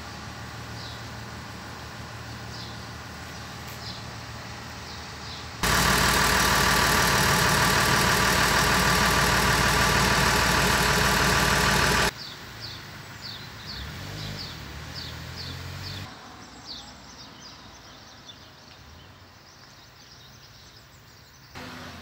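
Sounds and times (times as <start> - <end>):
bus engine noise: 0.0 - 12.2, 13.5 - 16.1, 21.6 - 22.0
birds chirping: 2.3 - 18.6.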